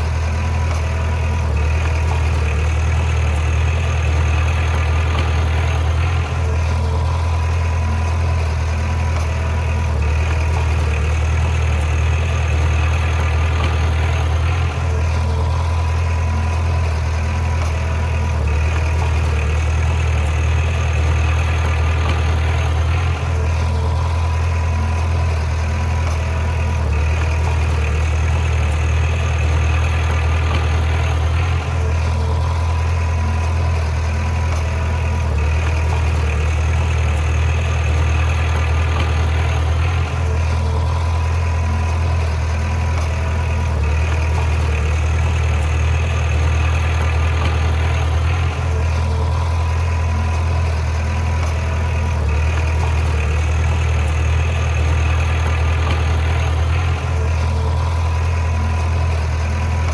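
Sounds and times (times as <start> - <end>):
diesel engine humming: 0.0 - 59.9.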